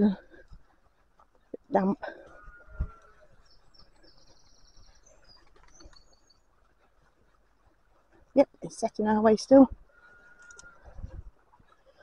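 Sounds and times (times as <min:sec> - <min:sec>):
small bird twittering: 0:01.4 - 0:07.5.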